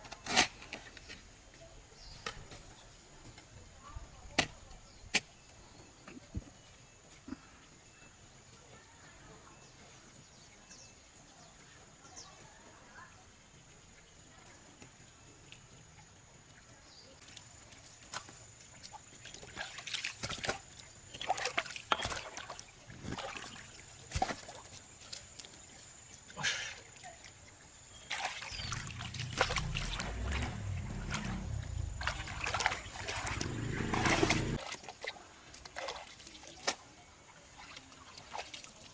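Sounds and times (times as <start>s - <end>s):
water splashing and sloshing: 17.2s - 25.6s, 27.9s - 36.8s, 37.4s - 38.9s.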